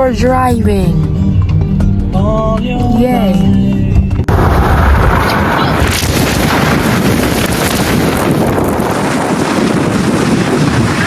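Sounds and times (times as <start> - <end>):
wind blasting microphone: 4.1 - 11.0.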